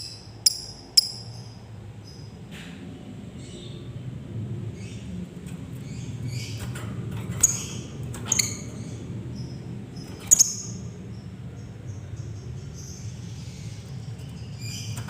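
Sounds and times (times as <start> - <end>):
bird chirping high-pitched: 0.0 - 2.3, 7.4 - 10.9
steady low hum: 0.0 - 15.0.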